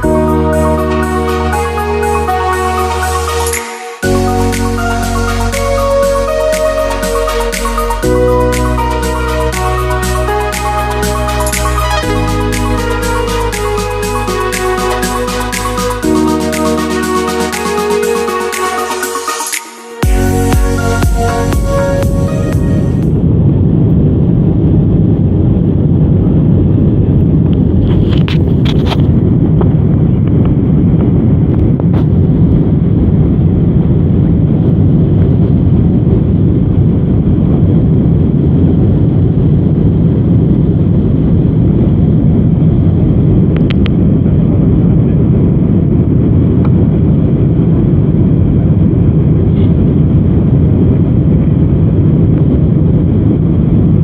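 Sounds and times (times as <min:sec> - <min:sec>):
airliner cabin rumble: 0:20.2 - 0:54.0.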